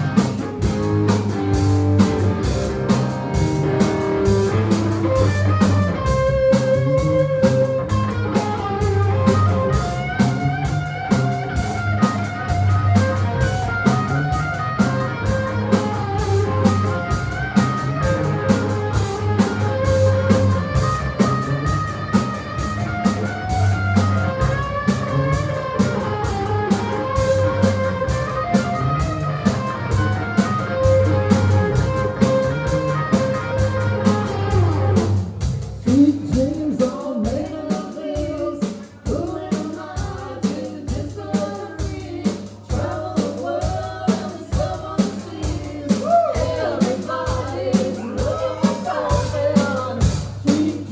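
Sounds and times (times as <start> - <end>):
guitar melody: 0.0 - 35.7
bass notes: 0.0 - 37.6, 38.2 - 50.9
drum kit beat: 0.0 - 50.9.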